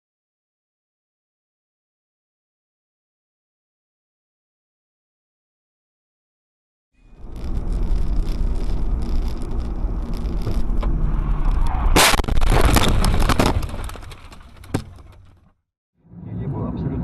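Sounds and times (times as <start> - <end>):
car crash: 7.0 - 15.6
road and engine rumble: 7.0 - 17.0
metal crunching and scraping: 7.1 - 15.6.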